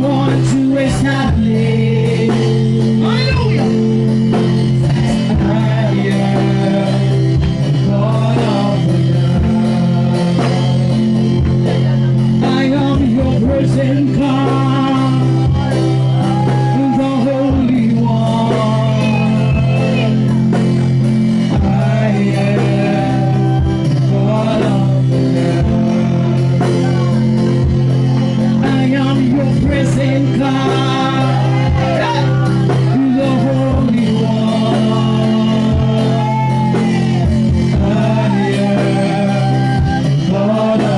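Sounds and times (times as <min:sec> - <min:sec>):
band playing sustained chords: 0:00.0 - 0:40.9
person singing: 0:00.0 - 0:40.9.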